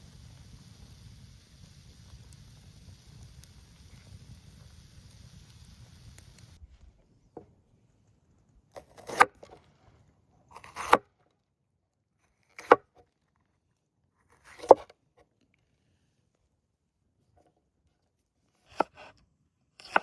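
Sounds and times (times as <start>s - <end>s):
knife chopping on cutting board: 8.8s - 9.4s, 10.6s - 11.0s, 18.7s - 19.1s, 19.8s - 20.0s.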